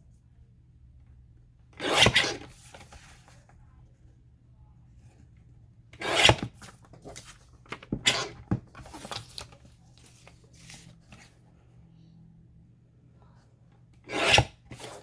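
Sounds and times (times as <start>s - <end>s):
paper rustling: 6.6s - 11.4s.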